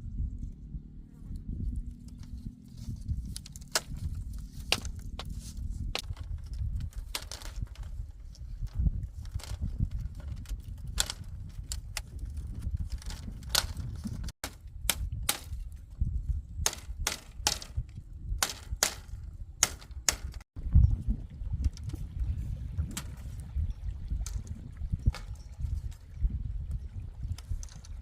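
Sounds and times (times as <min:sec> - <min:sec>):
low rumble: 0:00.0 - 0:14.8
hand tool striking wood: 0:04.6 - 0:05.3, 0:16.6 - 0:17.7, 0:18.4 - 0:20.4.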